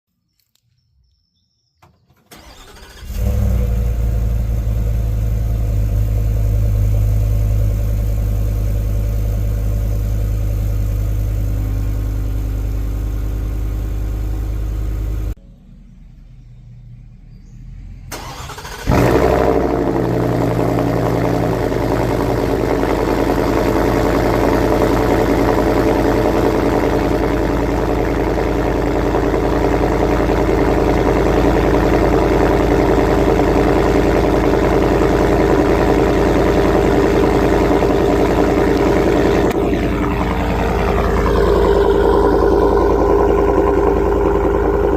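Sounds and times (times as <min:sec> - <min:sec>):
engine cranking: 0:02.1 - 0:03.8, 0:18.1 - 0:20.0
vehicle engine idling: 0:02.3 - 0:44.9.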